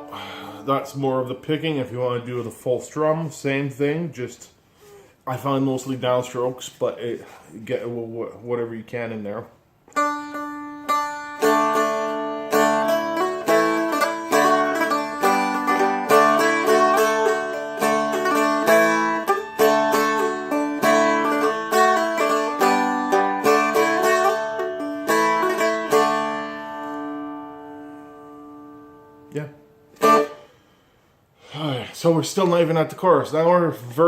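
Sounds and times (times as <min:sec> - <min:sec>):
strummed string instrument: 0:09.9 - 0:30.9.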